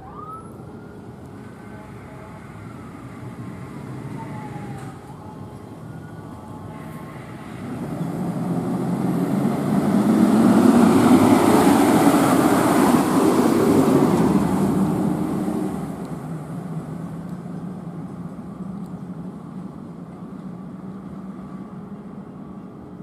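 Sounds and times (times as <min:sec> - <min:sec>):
vehicle driving past: 0:06.8 - 0:17.2.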